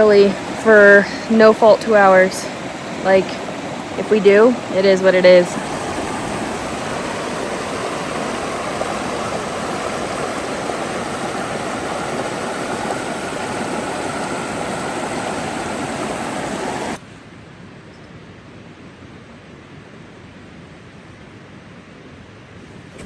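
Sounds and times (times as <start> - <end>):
creek water rushing over rocks: 0.0 - 17.0
faint hiss: 0.0 - 18.2.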